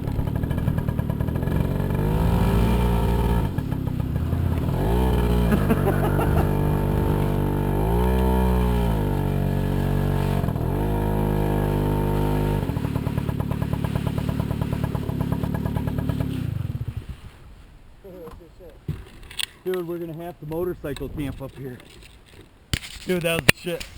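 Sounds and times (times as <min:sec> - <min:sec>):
scooter engine pulsing idle: 0:00.0 - 0:17.0
scooter engine revving: 0:00.0 - 0:17.0.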